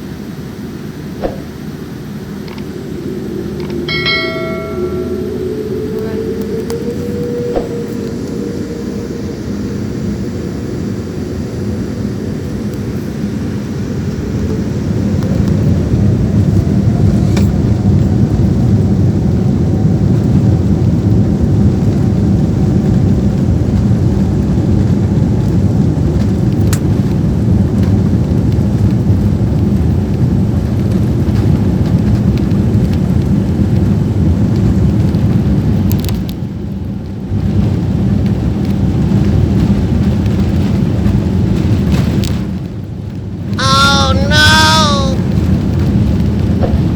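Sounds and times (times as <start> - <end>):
jet engine whine: 0.0 - 25.6
jet engines rumbling in cabin: 0.0 - 46.9.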